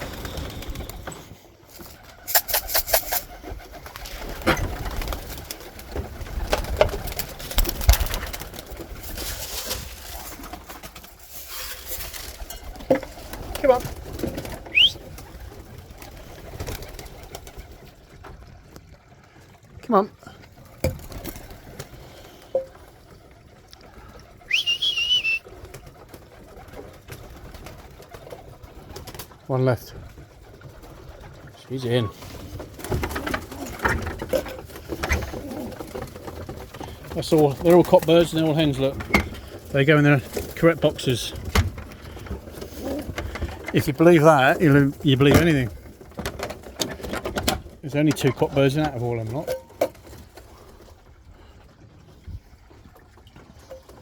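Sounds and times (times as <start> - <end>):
sharp clatters: 2.2 - 3.3
pigeons cooing: 12.6 - 17.9, 20.5 - 29.4, 30.2 - 47.6
person whistling high note: 14.7 - 15.0, 24.5 - 25.4.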